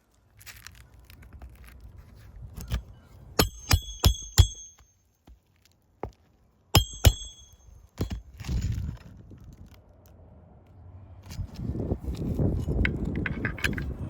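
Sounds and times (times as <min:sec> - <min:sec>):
hammer striking nail: 0:03.4 - 0:04.9, 0:06.8 - 0:08.2.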